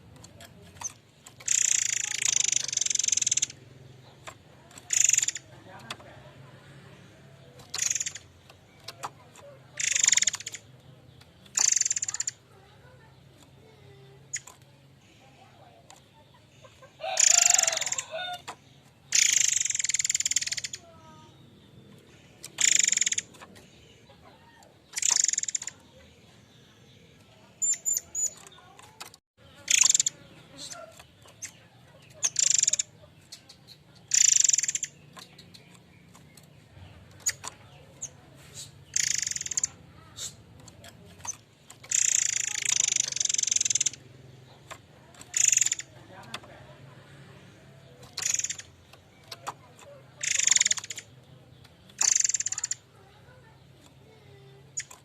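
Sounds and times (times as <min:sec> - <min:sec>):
faint short tweets: 0:29.4 - 0:55.0.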